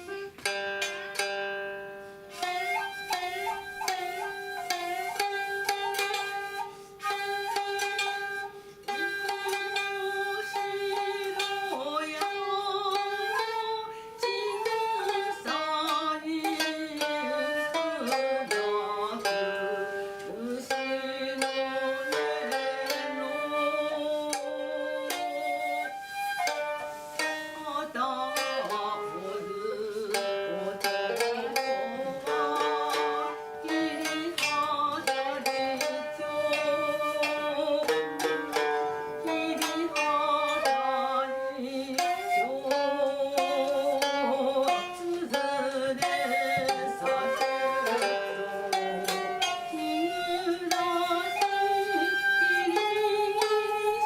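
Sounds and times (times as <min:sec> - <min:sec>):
flute playing long bending notes: 0:02.3 - 0:11.8, 0:23.2 - 0:30.1, 0:36.1 - 0:39.2, 0:41.3 - 0:43.1, 0:46.2 - 0:54.0.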